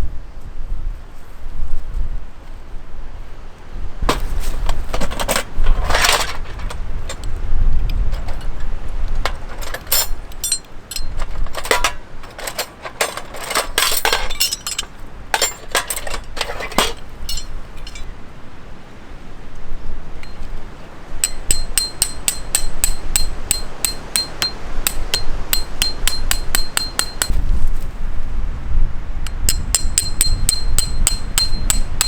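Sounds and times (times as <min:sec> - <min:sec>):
wind rumble on microphone: 0:00.0 - 0:32.0
small hard objects clinking: 0:04.9 - 0:07.3, 0:09.2 - 0:18.1.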